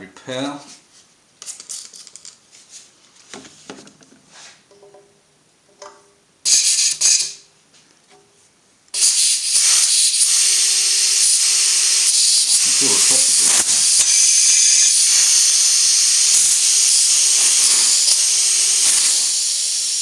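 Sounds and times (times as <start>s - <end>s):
loud steady air hiss: 6.4s - 7.5s, 8.9s - 20.0s
air blow gun blast: 9.0s - 20.0s.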